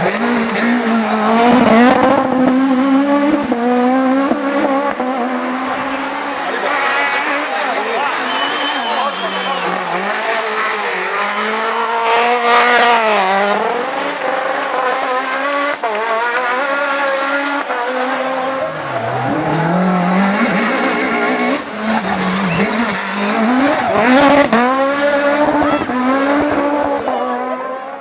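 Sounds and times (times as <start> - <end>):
car engine racing: 0.0 - 28.0.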